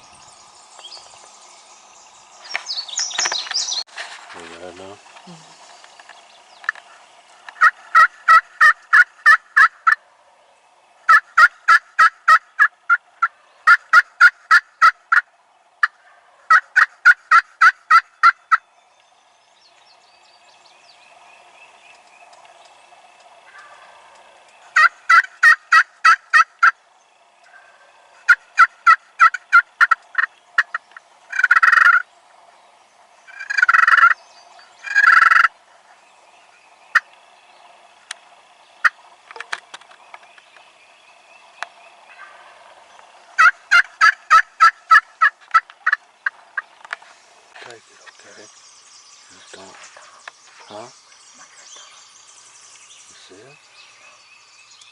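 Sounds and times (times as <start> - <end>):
turkey yelping: 6.9 - 10.0, 11.1 - 18.6, 23.4 - 26.8, 27.4 - 32.1, 33.3 - 34.2, 34.8 - 36.0, 36.9 - 37.1, 42.0 - 46.8.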